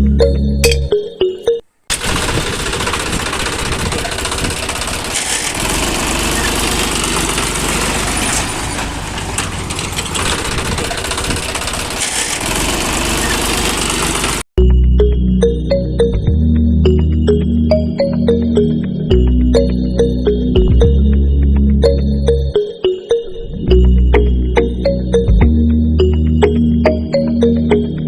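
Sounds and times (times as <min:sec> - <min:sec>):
machine rattling clatter: 0:01.9 - 0:14.4.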